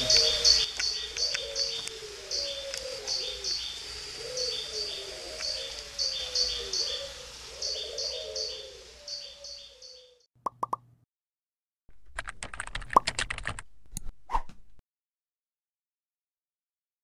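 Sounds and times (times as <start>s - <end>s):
lower wavering bird call: 4.2s - 10.2s.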